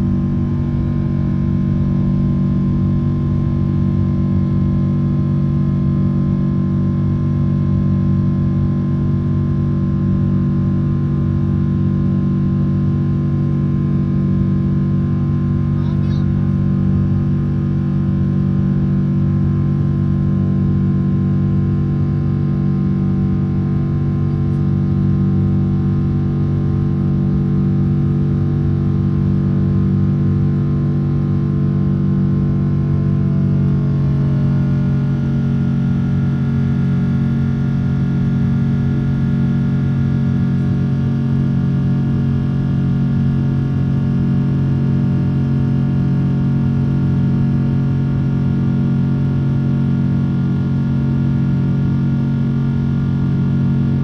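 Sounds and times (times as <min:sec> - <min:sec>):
jet engines droning in cabin: 0:23.4 - 0:42.8.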